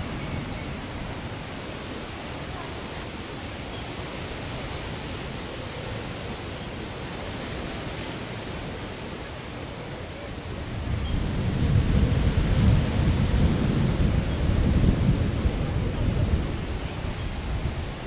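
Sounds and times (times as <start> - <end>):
wind buffeting microphone: 10.5 - 18.0.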